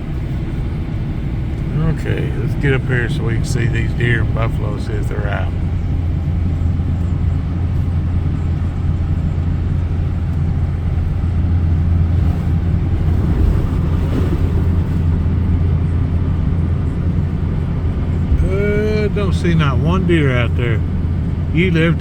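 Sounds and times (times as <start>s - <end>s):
vehicle road and engine noise: 0.0s - 22.0s.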